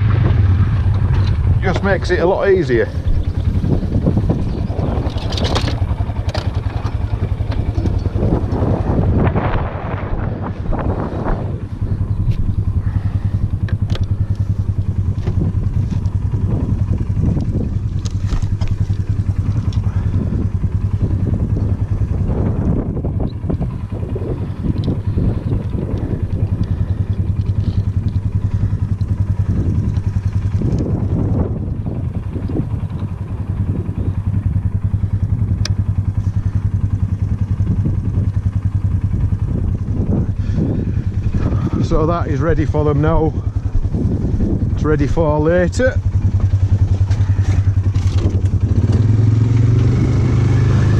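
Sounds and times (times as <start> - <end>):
atv engine running: 0.0 - 50.9
light clicks and rattles: 5.0 - 8.6, 25.6 - 28.3.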